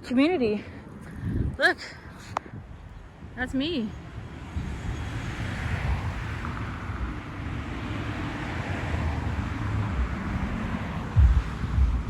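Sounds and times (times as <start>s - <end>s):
wind buffeting microphone: 0.4s - 12.0s
low vehicle engine hum: 7.0s - 12.0s.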